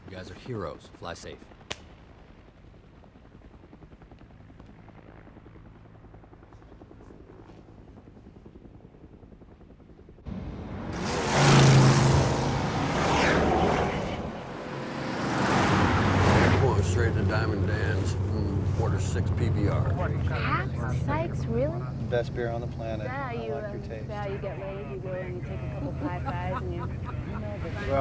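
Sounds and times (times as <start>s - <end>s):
engine drone with rapid flutter: 0.0s - 28.0s
rushing noise: 10.3s - 18.8s.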